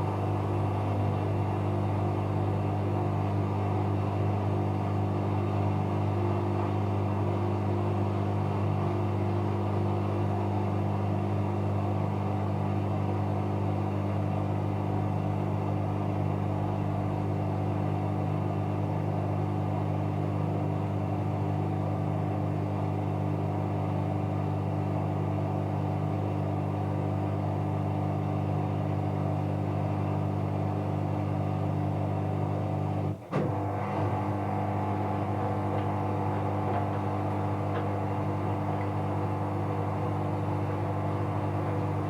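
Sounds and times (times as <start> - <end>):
washing machine humming: 0.0 - 18.5, 20.8 - 42.0
washing machine click: 33.3 - 42.0.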